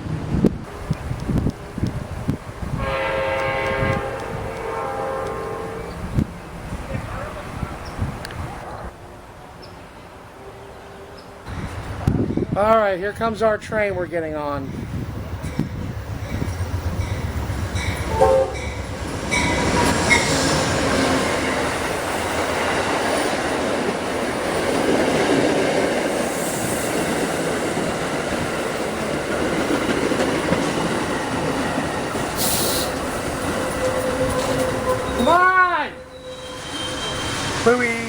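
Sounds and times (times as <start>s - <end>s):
train cars rumbling past: 0.0s - 38.0s
squealing wheels: 32.3s - 38.0s
brief hiss: 32.4s - 33.0s.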